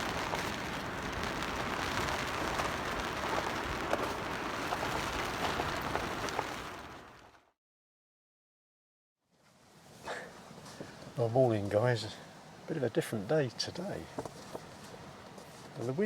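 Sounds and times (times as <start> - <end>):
rain pattering on canvas: 0.0 - 7.5, 13.8 - 16.0.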